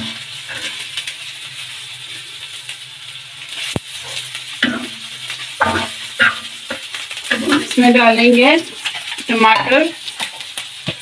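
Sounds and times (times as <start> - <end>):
metal spatula scraping griddle: 0.0 - 0.9
food sizzling in oil: 0.0 - 11.0.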